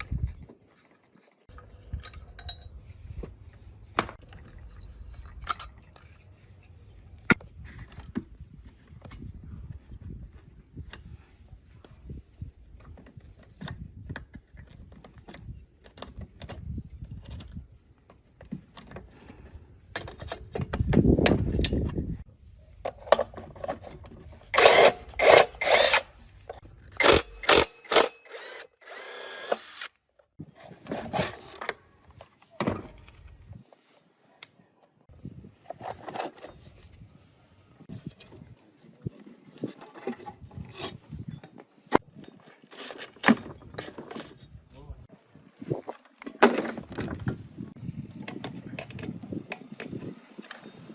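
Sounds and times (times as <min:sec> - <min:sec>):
power drill bursts: 0:24.6 - 0:26.1, 0:27.0 - 0:29.9.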